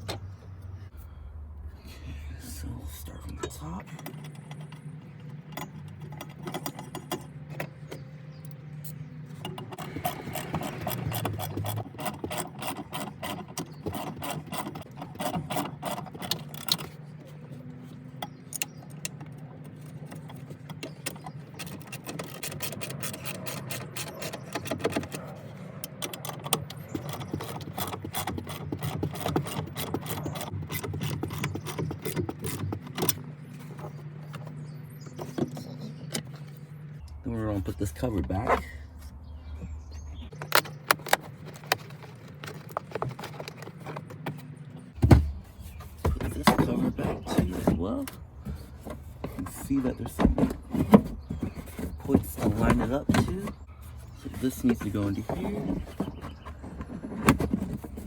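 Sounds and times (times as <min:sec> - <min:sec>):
car parts clicking and rattling: 0:00.0 - 0:01.2, 0:02.2 - 0:58.0
low steady hum: 0:00.0 - 0:11.8.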